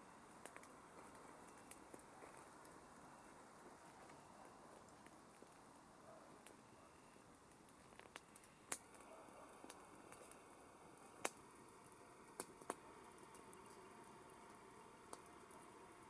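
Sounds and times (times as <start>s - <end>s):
faint steady hiss: 0.0s - 16.0s
campfire pops and snaps: 0.2s - 16.0s.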